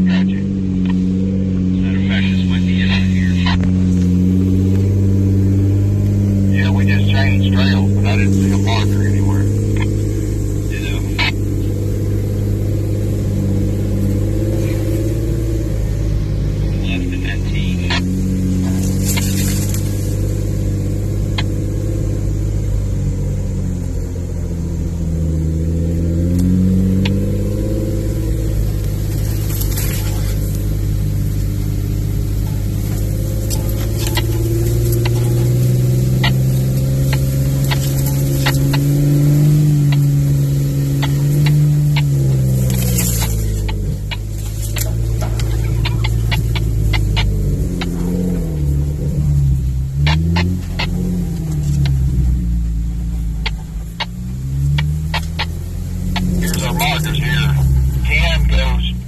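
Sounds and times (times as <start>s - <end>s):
vehicle engine revving: 0.0s - 59.0s
sharp clicks and knocks: 32.4s - 39.2s, 40.9s - 48.7s, 53.4s - 58.7s.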